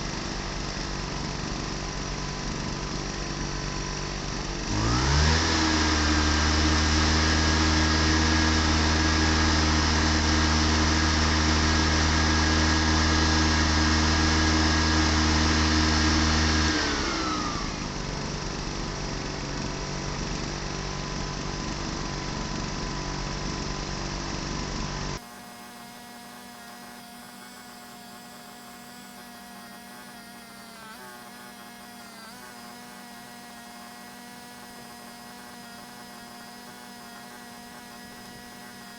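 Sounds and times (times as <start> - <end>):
portable generator engine running: 0.0 - 38.9.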